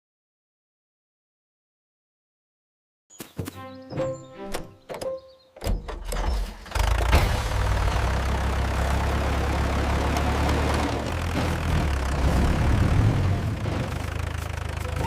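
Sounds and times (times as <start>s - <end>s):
tractor engine starting and running: 4.5s - 15.0s.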